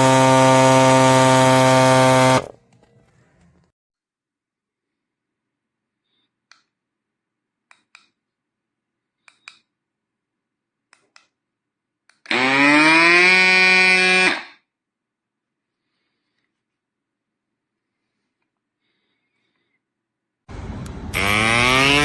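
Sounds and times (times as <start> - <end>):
pump motor whine: 0.0 - 2.6, 20.5 - 22.0.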